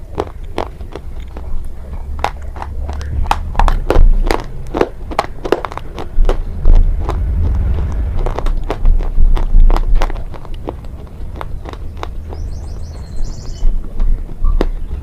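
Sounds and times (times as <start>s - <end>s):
crunching and chewing: 0.0s - 15.0s
low rumble: 1.5s - 14.0s.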